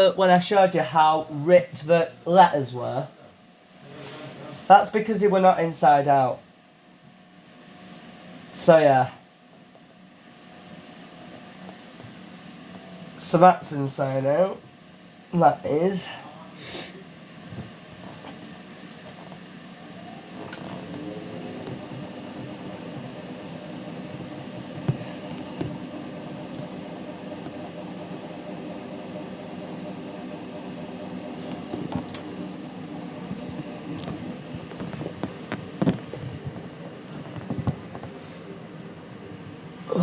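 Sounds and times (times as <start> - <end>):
washing machine humming: 17.4 - 40.0.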